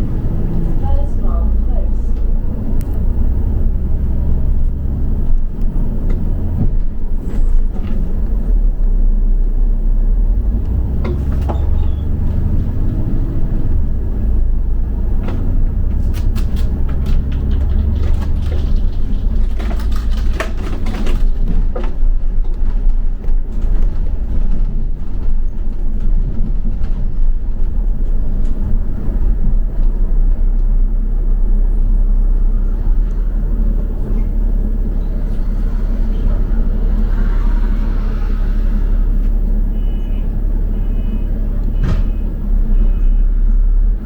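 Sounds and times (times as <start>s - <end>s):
bus engine and road rumble: 0.0s - 44.0s
bodywork rattles: 15.2s - 30.8s.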